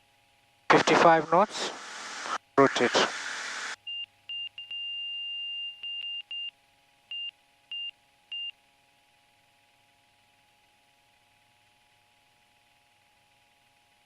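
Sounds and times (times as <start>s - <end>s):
cockpit warning beeps: 3.9s - 6.5s, 7.1s - 8.5s.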